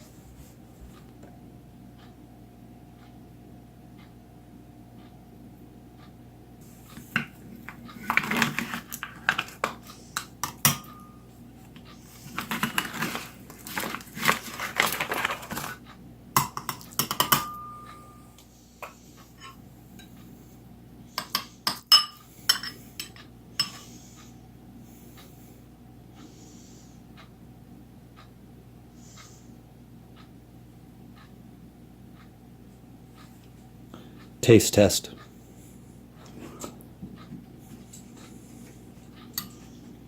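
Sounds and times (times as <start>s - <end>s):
faint steady hum: 0.0s - 40.0s
spoon scraping dishes: 12.0s - 15.7s, 18.8s - 20.1s, 21.2s - 23.9s, 39.3s - 39.8s.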